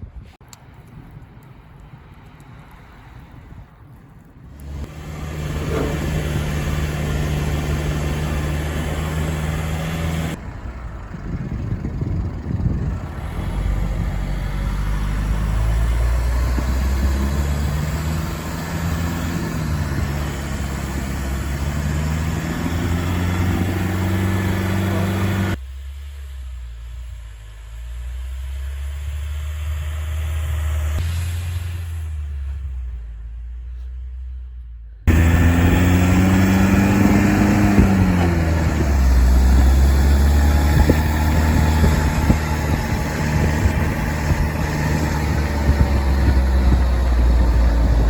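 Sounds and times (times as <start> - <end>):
vehicle engine running: 4.5 - 48.0.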